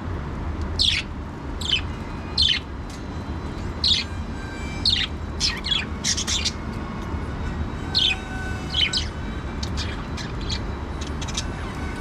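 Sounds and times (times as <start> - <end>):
budgerigars chirping: 0.8 - 2.7, 3.8 - 4.2, 4.8 - 6.6, 8.0 - 11.7.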